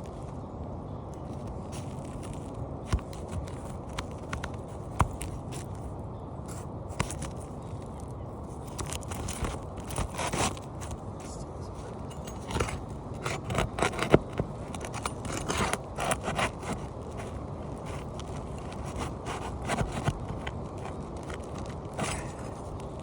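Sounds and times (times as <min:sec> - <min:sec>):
scraping at roof shingles: 0:08.6 - 0:23.0.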